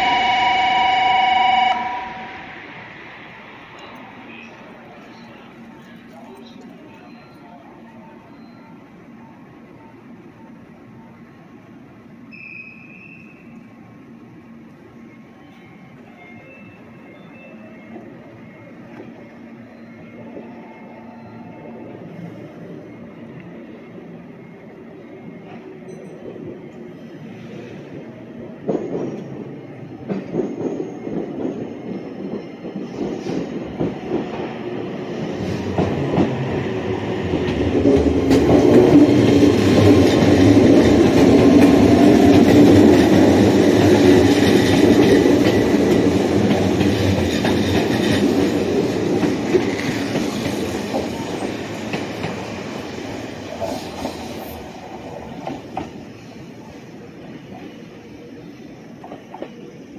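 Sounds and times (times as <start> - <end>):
electric train passing: 0.0 - 59.9
train wheels clicking over rail joints: 37.2 - 56.1.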